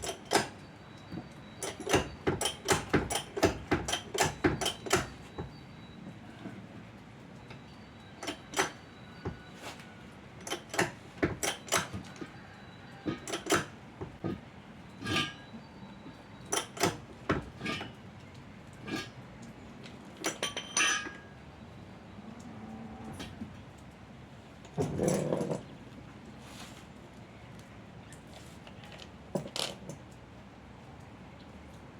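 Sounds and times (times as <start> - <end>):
metal tools clinking and clanking: 0.0 - 5.6, 13.0 - 13.7, 14.9 - 15.5, 16.5 - 18.0, 18.8 - 19.2, 20.2 - 21.4.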